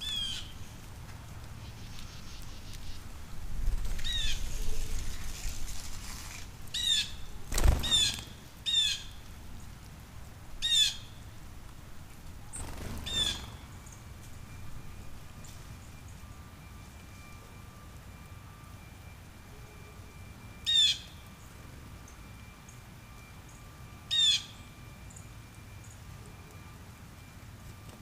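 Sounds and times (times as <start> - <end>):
birds chirping: 0.0 - 3.1, 6.7 - 9.8, 12.5 - 17.1
wings fluttering: 1.4 - 8.9, 12.4 - 14.5.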